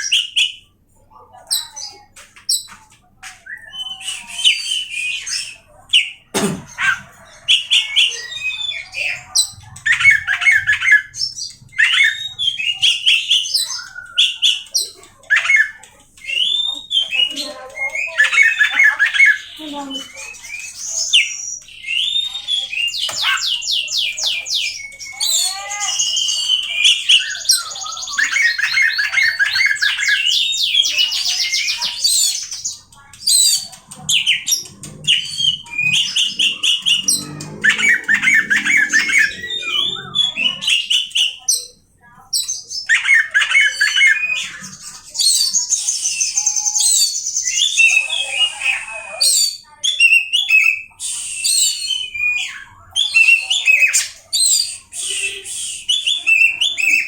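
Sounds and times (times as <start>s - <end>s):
songbird singing: 3.4s - 41.8s.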